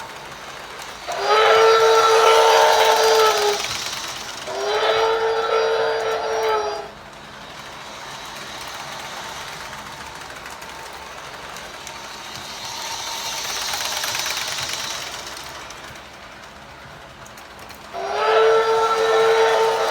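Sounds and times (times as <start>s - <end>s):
model train rolling on track: 0.0s - 19.9s.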